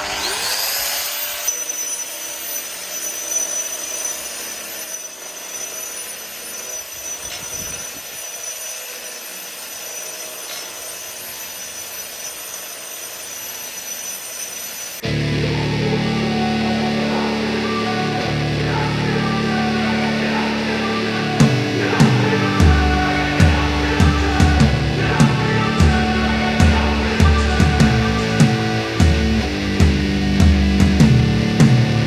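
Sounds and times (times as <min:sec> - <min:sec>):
angle grinder grinding brick: 0:00.0 - 0:15.2.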